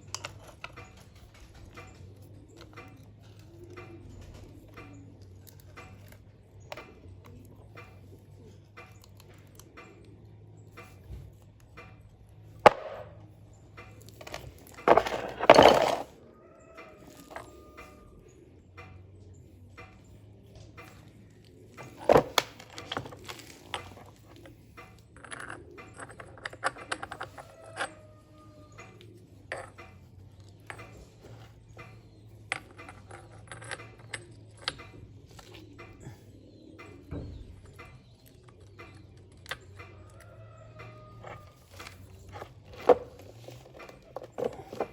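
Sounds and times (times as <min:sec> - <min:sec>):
rattling and scraping: 0:12.5 - 0:16.2, 0:20.8 - 0:28.1, 0:39.3 - 0:44.9.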